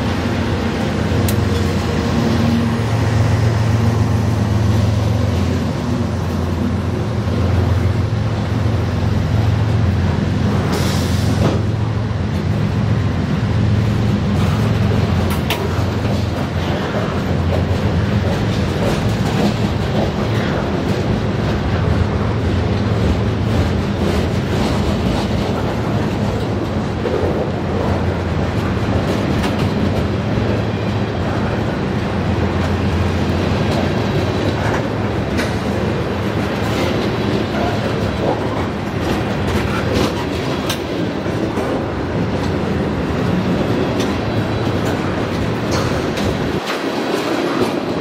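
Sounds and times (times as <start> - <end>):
freight train rumble: 0.0 - 48.0
wheels clicking over rail joints: 14.1 - 48.0.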